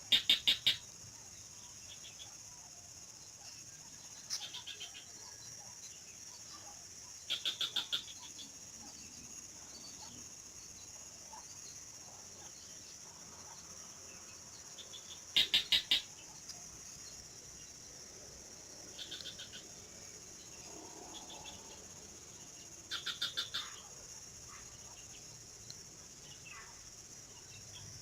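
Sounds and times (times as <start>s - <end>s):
high-pitched insect buzz: 0.0s - 2.3s, 13.4s - 18.0s.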